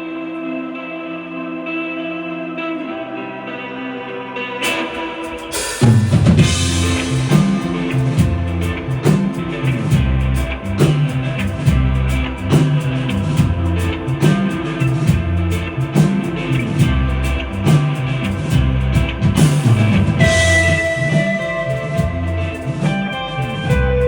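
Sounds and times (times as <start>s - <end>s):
electric guitar: 0.0s - 24.0s
drum kit steady beat: 4.6s - 24.0s
heavy bass line: 5.4s - 24.0s.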